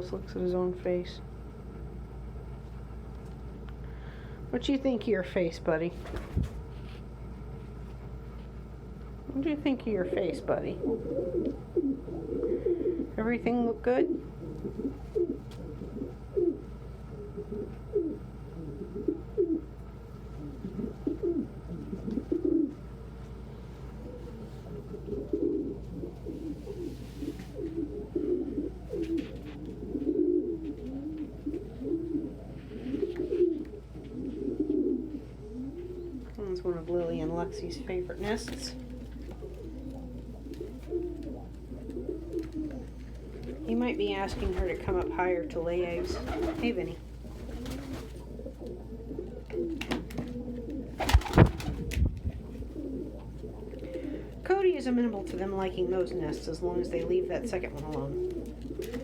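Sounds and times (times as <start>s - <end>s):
pigeons cooing: 10.0s - 13.2s, 13.9s - 36.4s, 37.4s - 45.1s, 45.8s - 59.0s.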